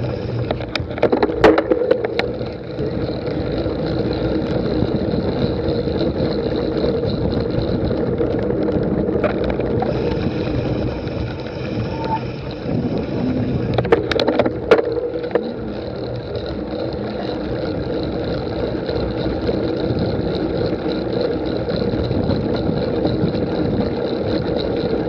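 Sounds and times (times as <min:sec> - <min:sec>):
bike clicks and rattles: 0:00.0 - 0:25.0
bike tyres rolling: 0:00.0 - 0:25.0
wind noise: 0:00.0 - 0:25.0.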